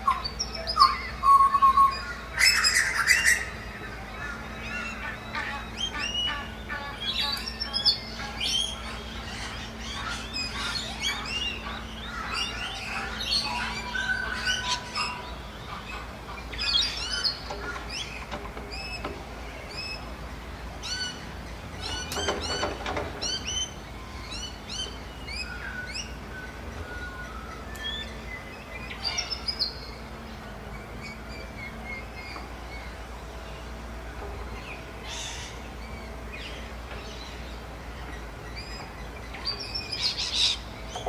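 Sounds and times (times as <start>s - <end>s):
bird squawking: 0.0s - 19.1s, 40.0s - 41.0s
wild birds chirping: 0.0s - 41.0s.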